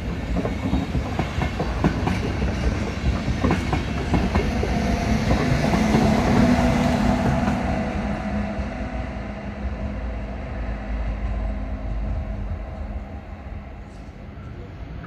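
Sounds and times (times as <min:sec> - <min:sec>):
train coaches rumbling on rails: 0:00.0 - 0:15.0.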